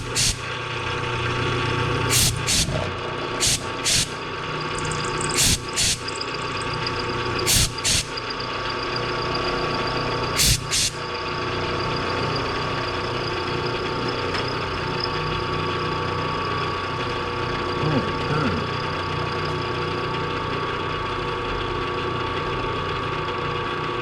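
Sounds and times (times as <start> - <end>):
short hissing bursts: 0.0 - 0.5, 2.1 - 2.8, 3.4 - 4.2, 4.9 - 6.1, 7.5 - 8.2, 10.4 - 11.0
machine tool humming and whining: 0.0 - 23.9.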